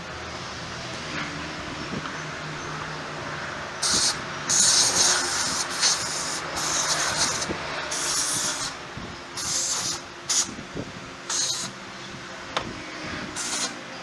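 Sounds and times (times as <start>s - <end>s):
pressurised gas hissing bursts: 3.7s - 11.9s, 12.6s - 14.0s.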